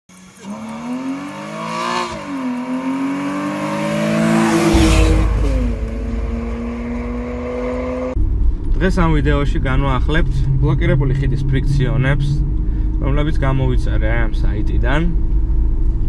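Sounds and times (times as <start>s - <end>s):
car accelerating past: 0.2s - 8.2s
steady deep drone: 3.7s - 16.0s.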